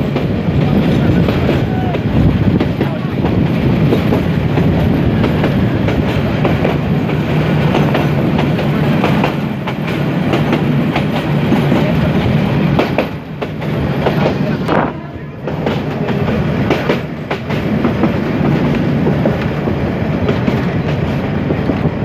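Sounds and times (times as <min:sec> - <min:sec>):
rail joints clicking and clattering: 0:00.0 - 0:22.0
train wheels rumbling on rails: 0:00.0 - 0:22.0.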